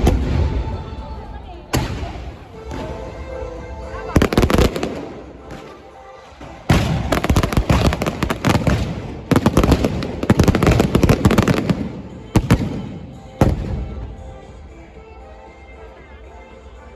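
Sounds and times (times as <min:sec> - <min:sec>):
fireworks cracking and banging: 0:04.0 - 0:14.2.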